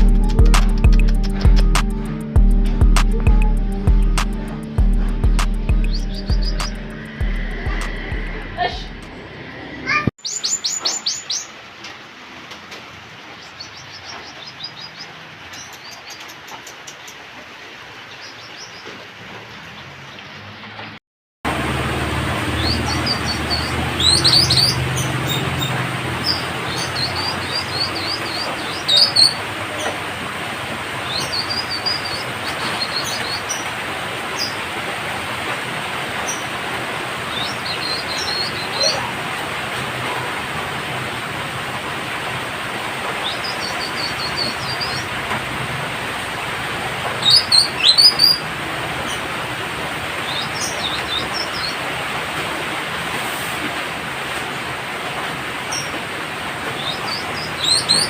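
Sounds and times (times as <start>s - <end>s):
bird calling with high trills: 22.5s - 29.4s, 37.3s - 39.2s, 47.2s - 48.4s.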